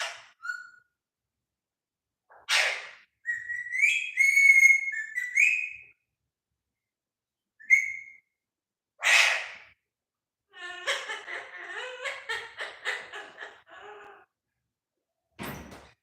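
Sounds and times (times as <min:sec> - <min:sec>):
parrot squawking: 0:00.0 - 0:00.8, 0:02.3 - 0:05.8, 0:09.0 - 0:09.8, 0:10.5 - 0:14.3
parrot whistling: 0:02.6 - 0:05.9, 0:07.6 - 0:08.2.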